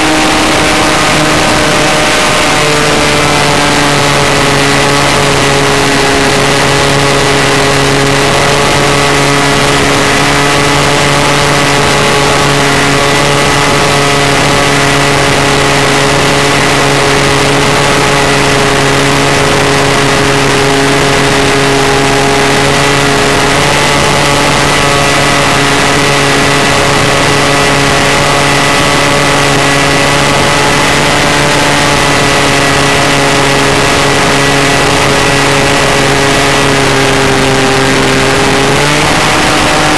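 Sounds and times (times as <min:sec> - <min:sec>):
model airplane motor running: 0:00.0 - 0:39.9.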